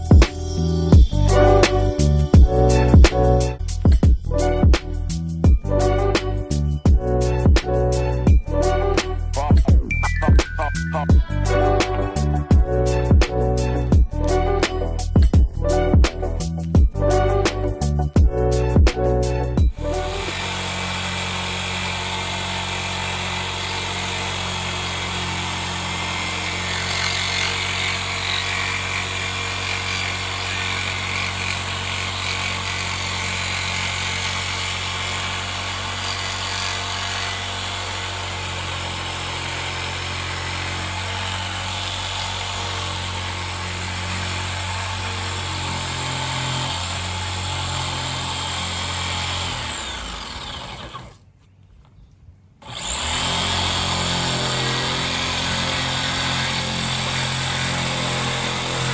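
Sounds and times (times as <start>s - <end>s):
power tool grinding: 19.6s - 51.2s, 52.6s - 58.9s.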